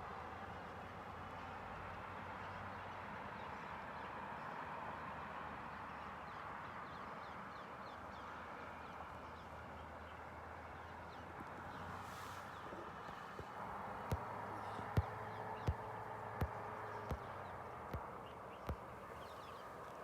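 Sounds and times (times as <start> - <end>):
birds chirping: 10.8 - 20.0.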